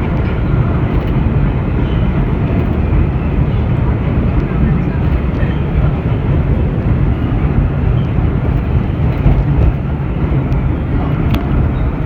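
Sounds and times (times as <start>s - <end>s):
wheels rumbling on rail: 0.0s - 12.0s
faint clicks: 8.0s - 11.8s.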